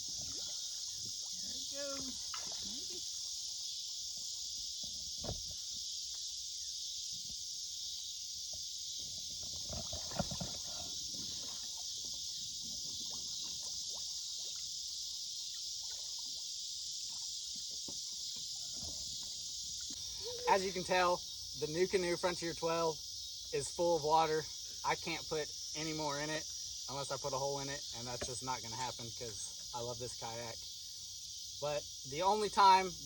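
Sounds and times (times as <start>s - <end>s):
water sloshing in kayak: 0.0s - 24.9s
high-pitched insect chorus: 0.0s - 33.0s.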